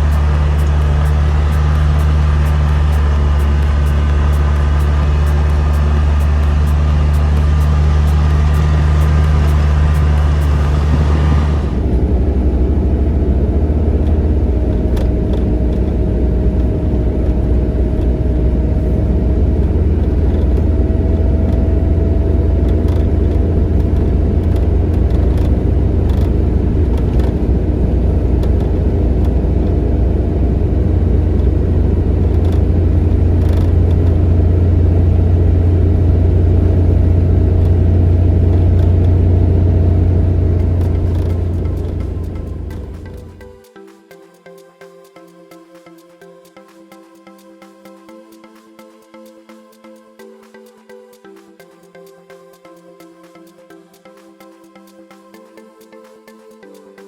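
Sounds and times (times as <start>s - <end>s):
vehicle driving rumble: 0.0s - 43.5s.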